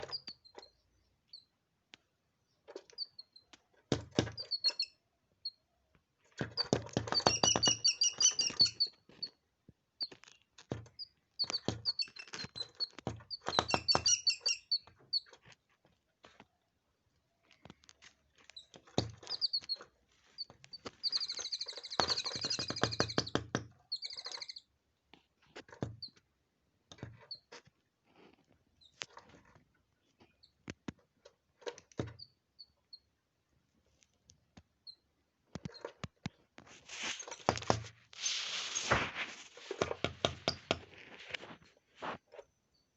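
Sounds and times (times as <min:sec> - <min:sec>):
small birds chirping: 0:00.0 - 0:26.3, 0:28.6 - 0:36.5
sharp taps and knocks: 0:06.3 - 0:08.7, 0:10.1 - 0:14.3, 0:20.5 - 0:24.4, 0:37.3 - 0:37.9, 0:39.6 - 0:41.0
rustling: 0:35.8 - 0:42.5.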